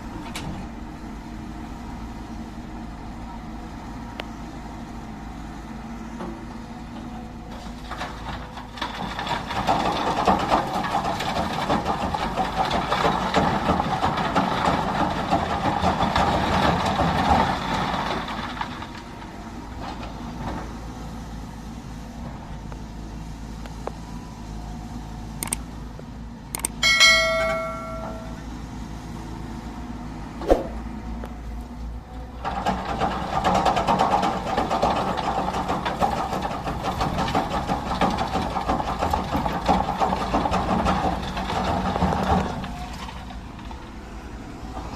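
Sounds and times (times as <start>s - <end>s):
heavy diesel machinery running: 0.0s - 44.9s
sharp click: 25.4s - 25.6s, 26.6s - 26.8s.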